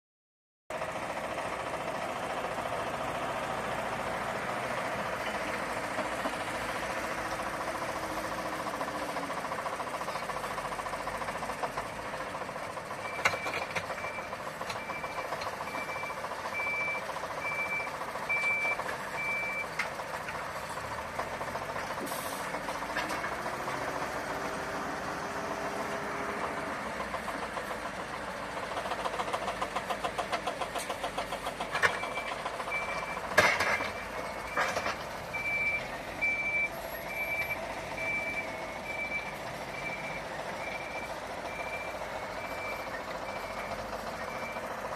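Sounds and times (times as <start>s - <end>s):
reversing alarm beeping: 12.9s - 19.7s, 31.9s - 44.7s.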